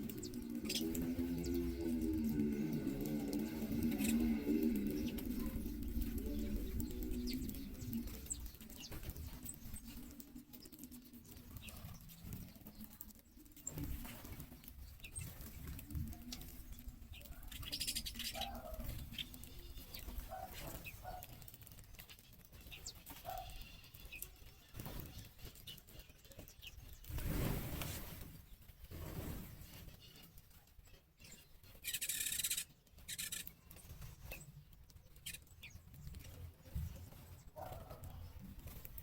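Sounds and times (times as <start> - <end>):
birds chirping: 0.0 - 27.6, 28.2 - 39.0
wings flapping: 0.0 - 30.7
light pattering: 0.0 - 39.0.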